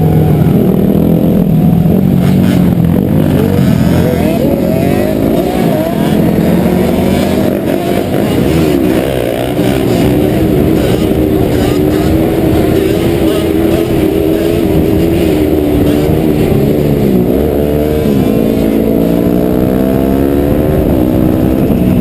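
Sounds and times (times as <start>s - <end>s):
dirt bike engines revving: 0.0s - 22.0s.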